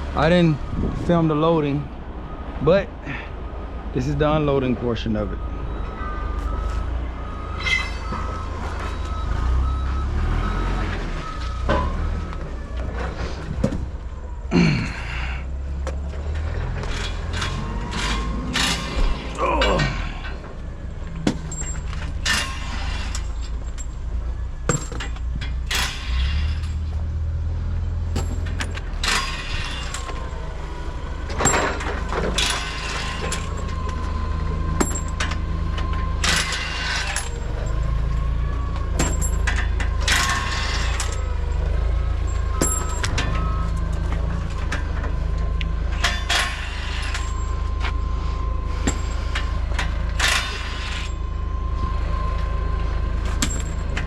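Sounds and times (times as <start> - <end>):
heavy diesel machinery rumbling: 0.0 - 54.0
sharp metallic clanks: 21.2 - 23.9, 31.3 - 33.8, 53.3 - 54.0.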